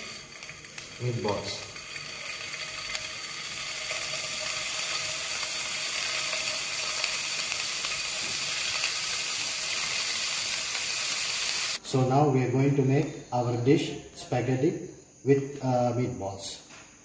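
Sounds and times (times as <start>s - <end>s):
meatballs sizzling in a frying pan: 0.0s - 11.8s.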